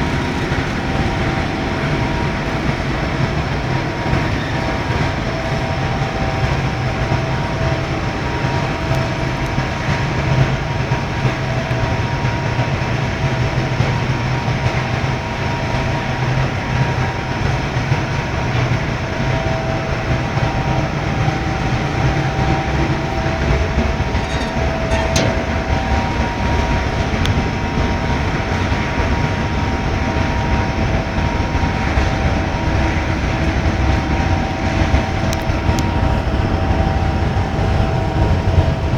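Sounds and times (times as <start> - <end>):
furnace low rumble: 18.2 - 38.9.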